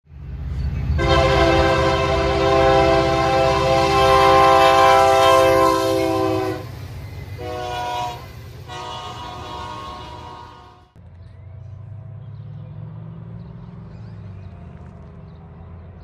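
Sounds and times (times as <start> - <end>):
locomotive engine rumble: 0.1 - 16.0
locomotive air horn blasts: 1.0 - 6.8, 7.4 - 11.0.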